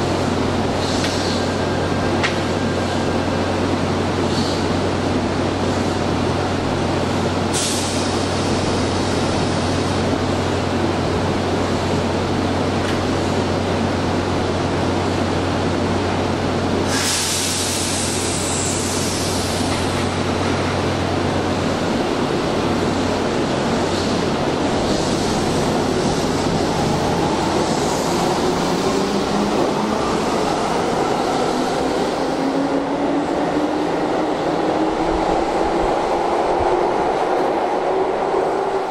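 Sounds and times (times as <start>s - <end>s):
train low hum: 0.0s - 38.9s
compressed air hiss: 16.9s - 19.6s.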